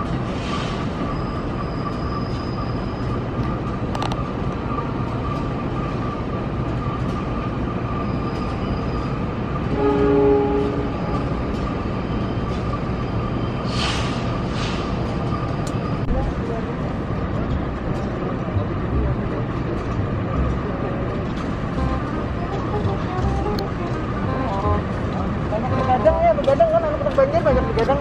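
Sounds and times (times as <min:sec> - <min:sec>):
electric train rolling over tracks: 0:00.0 - 0:28.0
train horn blast: 0:09.7 - 0:11.1, 0:21.7 - 0:25.0, 0:25.6 - 0:26.3.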